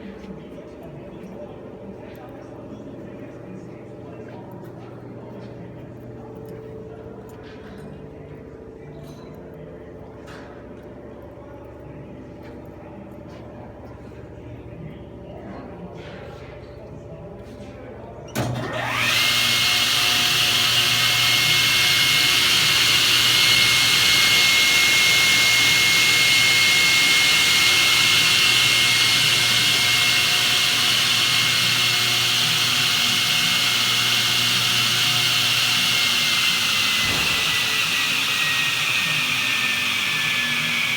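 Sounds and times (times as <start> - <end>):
table saw running with high whine: 18.6 - 40.9.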